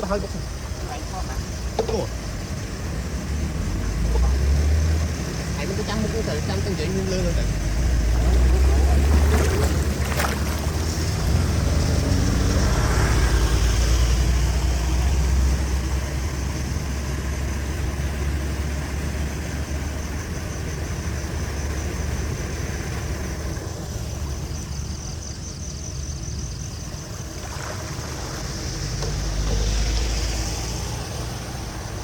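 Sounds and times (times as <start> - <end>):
floodwater rushing: 2.9 - 15.2, 26.9 - 32.0.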